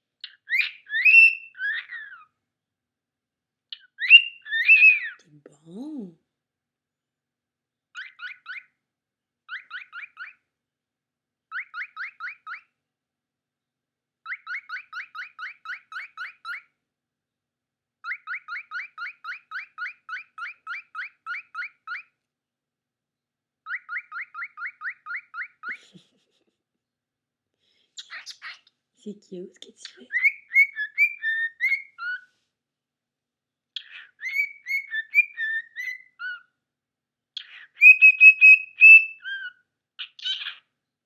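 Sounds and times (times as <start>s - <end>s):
cockatiel whistled chirps: 0.2s - 2.3s, 3.8s - 5.2s, 11.5s - 12.7s, 14.3s - 16.7s, 18.0s - 22.1s, 23.7s - 25.8s, 30.1s - 32.3s, 33.8s - 36.5s, 37.4s - 40.6s.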